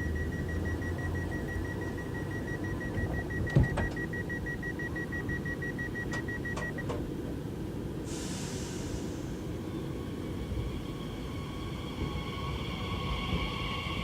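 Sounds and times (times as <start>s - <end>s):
high door warning beeps: 0.0s - 7.0s
doors clacking shut: 2.9s - 4.1s
air hiss: 8.0s - 9.6s.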